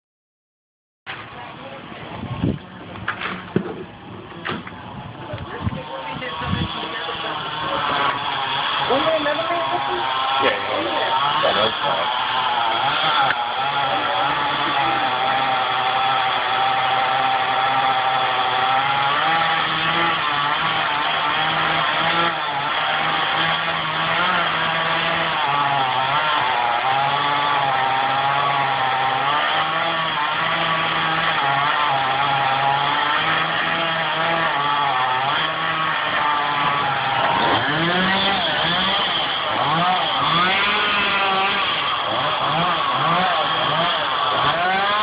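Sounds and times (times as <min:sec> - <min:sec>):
chainsaw running: 0:02.4 - 0:45.0.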